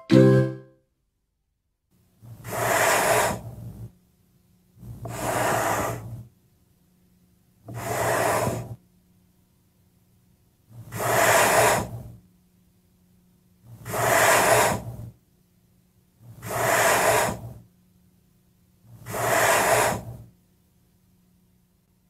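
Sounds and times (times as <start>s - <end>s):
faint low hum: 3.4s - 14.0s, 20.0s - 22.0s.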